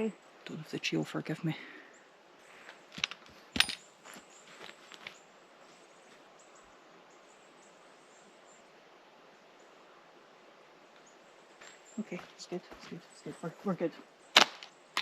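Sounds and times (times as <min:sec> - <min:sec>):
faint bird chirps: 0:00.0 - 0:02.9, 0:03.8 - 0:15.0
catapult snap: 0:14.4 - 0:15.0.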